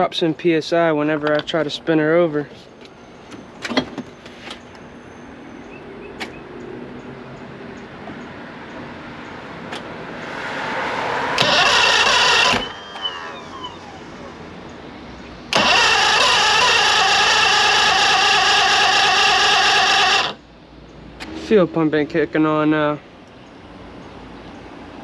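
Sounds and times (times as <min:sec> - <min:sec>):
outboard engine starter cranking: 0:11.4 - 0:14.3, 0:15.5 - 0:20.4.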